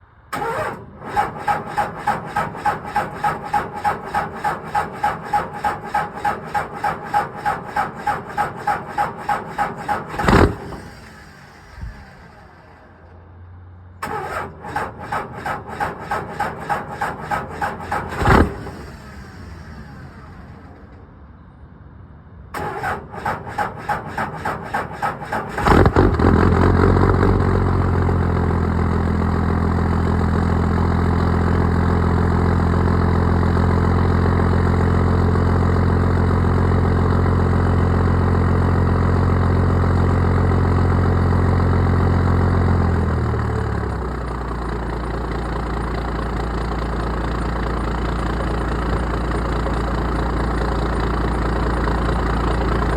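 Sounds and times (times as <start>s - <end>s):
diesel engine running: 0.0s - 52.9s
starter motor cranking: 0.4s - 12.5s, 14.0s - 20.2s, 22.6s - 26.6s, 43.8s - 52.9s.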